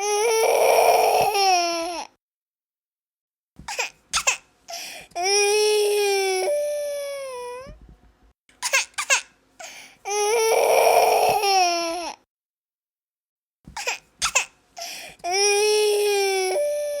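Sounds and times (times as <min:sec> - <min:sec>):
baby crying: 0:00.0 - 0:02.1, 0:05.2 - 0:07.8, 0:10.1 - 0:12.2, 0:14.8 - 0:17.0.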